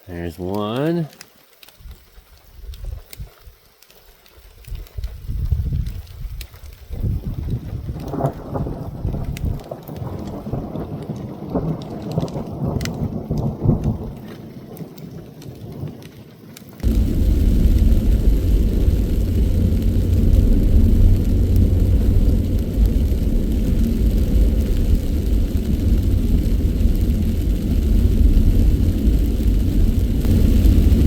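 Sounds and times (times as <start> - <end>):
raindrops ticking on vehicle: 0.3 - 31.0
thunder rumbling: 6.7 - 16.1, 16.8 - 31.0
loud steady low rumble: 16.8 - 31.0.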